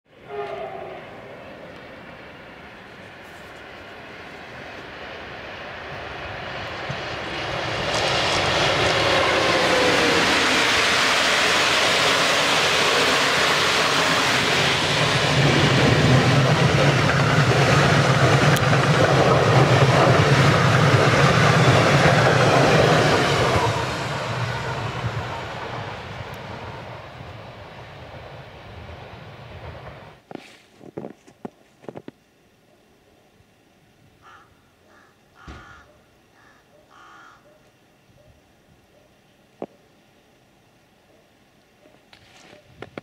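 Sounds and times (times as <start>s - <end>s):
passenger train passing: 0.1s - 30.3s.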